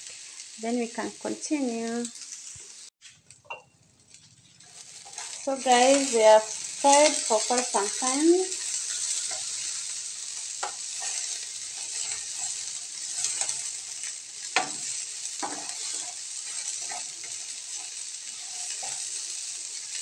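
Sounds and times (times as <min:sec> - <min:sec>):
eggplant sizzling in oil: 0:00.0 - 0:20.0
spatula scraping and knocking pan: 0:04.1 - 0:09.9, 0:10.6 - 0:19.3.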